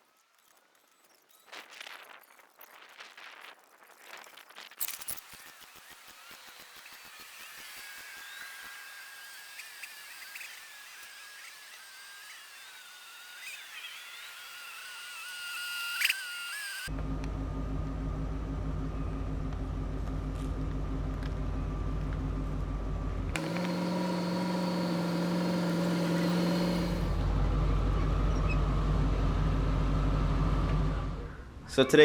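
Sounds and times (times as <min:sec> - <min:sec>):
vehicle engine hum: 0:16.8 - 0:31.6
road noise: 0:17.6 - 0:31.4.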